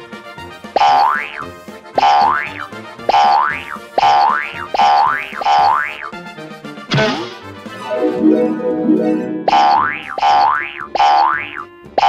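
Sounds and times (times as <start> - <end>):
cartoon boing sound effect: 0.8 - 1.4, 2.0 - 6.1, 9.2 - 11.7.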